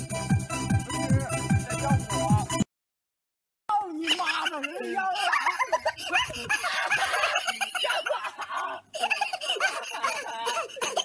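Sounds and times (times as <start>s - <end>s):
people laughing and giggling: 1.0s - 2.5s, 3.8s - 11.0s.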